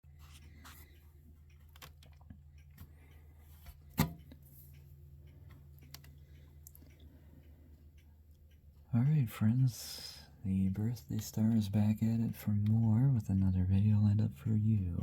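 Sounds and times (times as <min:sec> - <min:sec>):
steady low hum: 0:00.0 - 0:15.0
light clicks: 0:00.2 - 0:08.8.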